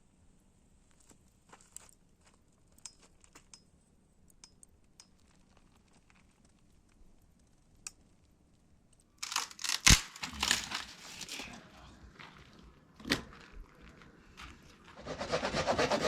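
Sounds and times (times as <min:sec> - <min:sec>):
loud crumpling rustle: 0:09.2 - 0:11.6.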